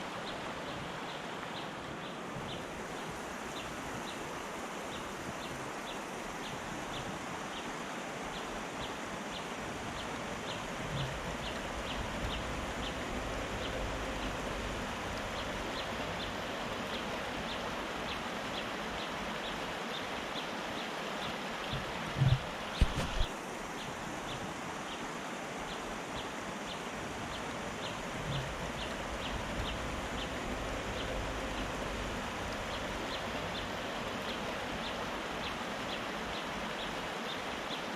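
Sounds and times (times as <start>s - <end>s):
river rushing: 0.0s - 37.9s
low thumps: 21.7s - 23.3s.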